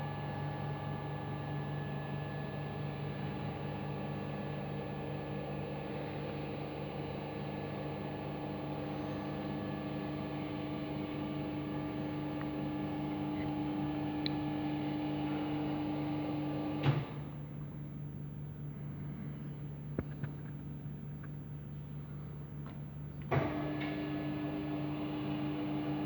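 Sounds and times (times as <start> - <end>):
dough mixer motor humming: 0.0 - 17.2, 23.4 - 26.0.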